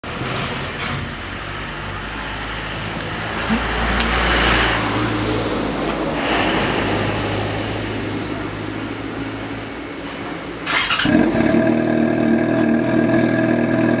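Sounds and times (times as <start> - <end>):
motorcycle engine open-pipe note: 10.6 - 14.0.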